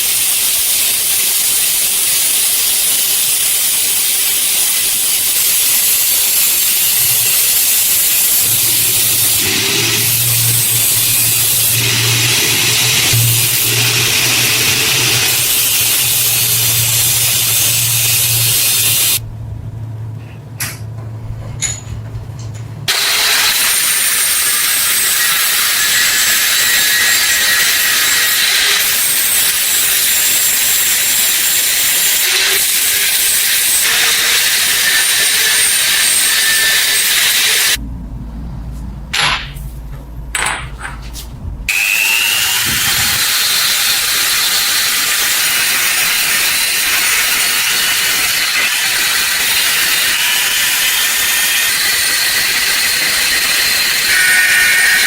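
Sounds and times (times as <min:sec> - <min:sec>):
power tool abrading steel: 0:00.0 - 0:19.2, 0:22.9 - 0:37.8, 0:41.7 - 0:55.0
low hum: 0:07.2 - 0:22.9, 0:37.8 - 0:41.7.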